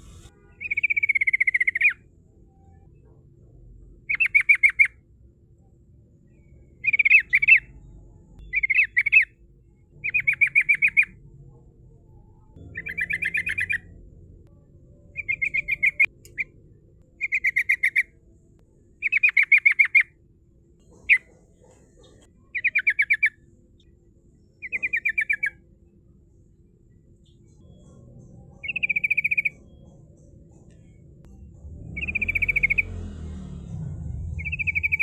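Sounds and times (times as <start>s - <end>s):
bulbul chattering song: 0.0s - 2.0s, 4.1s - 5.0s, 6.3s - 7.8s, 8.4s - 9.4s, 10.0s - 11.2s, 12.6s - 18.2s, 19.0s - 20.2s, 24.6s - 25.6s, 27.2s - 33.4s, 34.2s - 35.0s.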